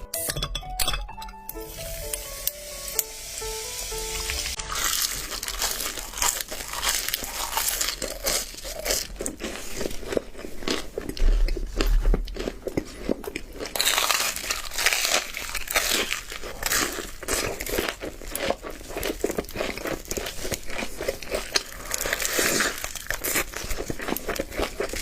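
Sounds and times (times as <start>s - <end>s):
music notes: 0.0s - 7.0s
crunching bites and chewing: 4.6s - 25.0s.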